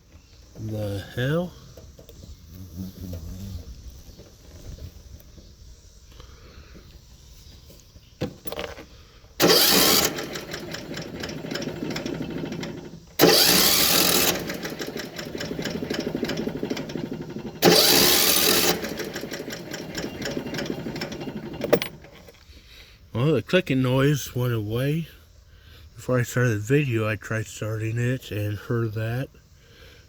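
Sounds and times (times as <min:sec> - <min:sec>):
starter cranking mower engine: 0:08.5 - 0:22.5.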